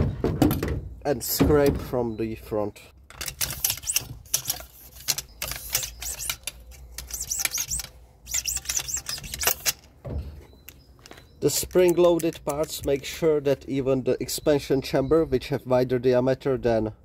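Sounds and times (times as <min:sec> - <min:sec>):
metal scraper scraping inside tube: 0:03.4 - 0:09.7
high squeaks: 0:03.4 - 0:12.9.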